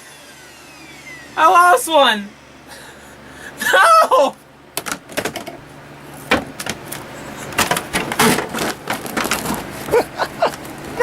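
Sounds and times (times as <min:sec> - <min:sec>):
vacuum cleaner humming: 0:00.0 - 0:03.8, 0:07.0 - 0:11.0.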